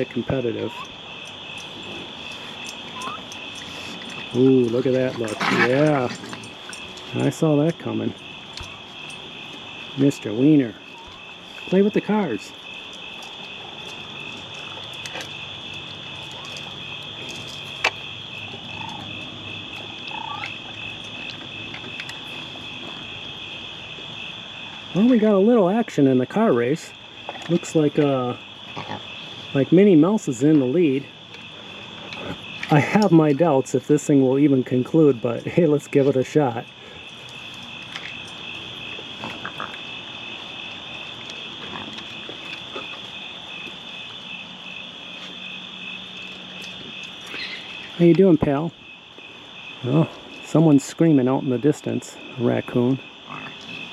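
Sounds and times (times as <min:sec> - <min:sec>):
shrill chorus of night creatures: 0:00.0 - 0:06.4, 0:15.2 - 0:21.4, 0:46.6 - 0:48.7
crickets trilling: 0:00.0 - 0:53.9.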